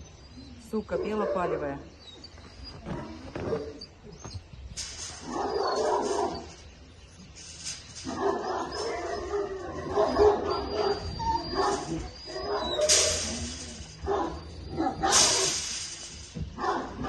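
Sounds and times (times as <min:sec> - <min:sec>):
puppy whining and yelping: 0:01.9 - 0:04.5, 0:08.2 - 0:15.1.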